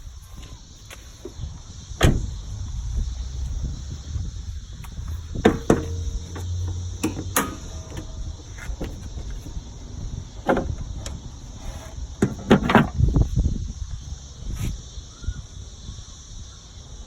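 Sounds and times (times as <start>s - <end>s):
low steady rumble: 0.0s - 14.5s
sharp knocks and clunks: 4.8s - 9.6s, 10.4s - 13.2s.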